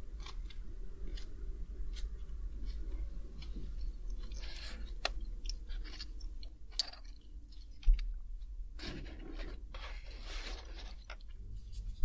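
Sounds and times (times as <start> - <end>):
nuts being chewed: 0.0 - 8.6.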